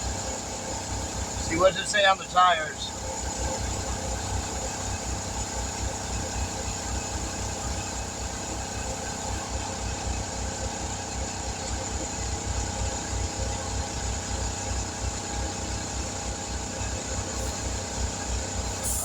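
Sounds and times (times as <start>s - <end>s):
motor running with low throb: 0.0s - 19.0s.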